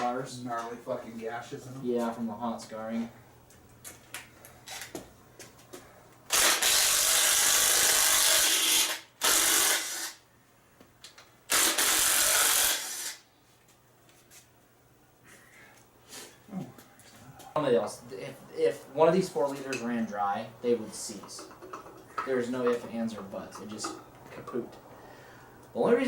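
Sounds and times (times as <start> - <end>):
power tool running: 6.3 - 10.2, 11.5 - 13.2
clicks and knocks of hand work: 21.2 - 24.6.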